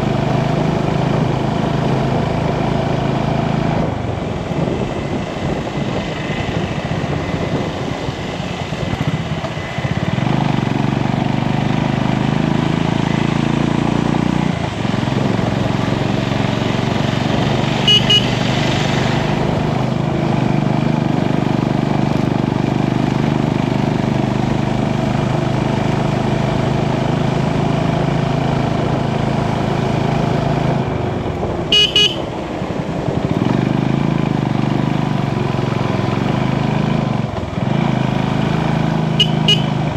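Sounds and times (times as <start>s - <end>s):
motorcycle engine running: 0.0s - 39.9s
short horn honks: 17.8s - 18.5s, 31.7s - 32.3s, 39.1s - 39.8s.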